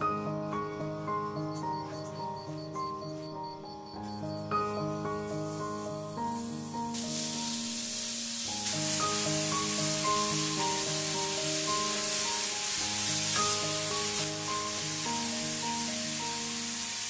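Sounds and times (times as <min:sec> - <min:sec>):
background music: 0:00.0 - 0:17.0
vegetable strips sizzling in oil: 0:05.4 - 0:17.0.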